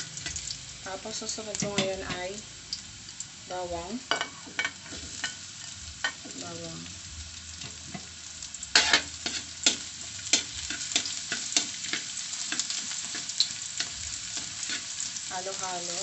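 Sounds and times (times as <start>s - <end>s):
garlic sizzling in oil: 0.0s - 16.0s
metal spatula scraping wok: 4.1s - 6.4s, 7.6s - 15.3s.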